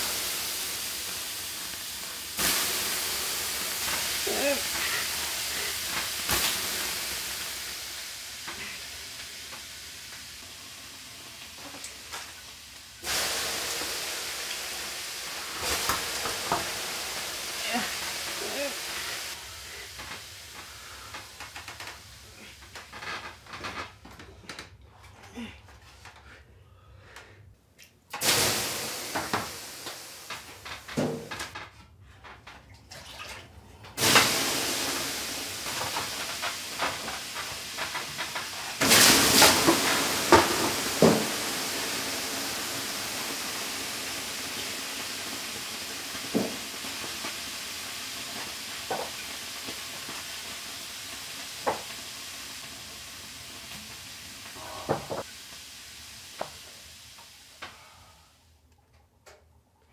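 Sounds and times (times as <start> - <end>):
steam hissing on hot stones: 0.0 - 23.4, 28.2 - 31.4, 34.0 - 58.5
water splashes: 32.7 - 34.8.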